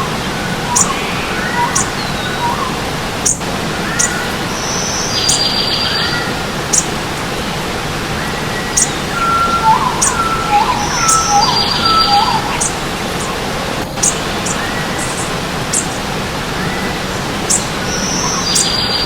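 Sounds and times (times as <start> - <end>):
whistled bird notes: 0.0 - 6.9, 8.1 - 16.0, 16.6 - 19.0
birds chirping: 0.0 - 19.0
stream water rushing: 0.0 - 19.0
buzzy bird trill: 0.7 - 6.9, 8.2 - 16.0.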